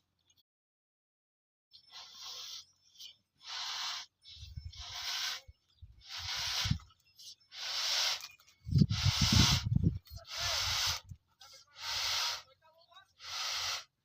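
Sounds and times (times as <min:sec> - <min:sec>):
hand air pump hissing: 0:01.9 - 0:02.6, 0:03.4 - 0:06.9, 0:07.5 - 0:12.5, 0:13.2 - 0:14.0.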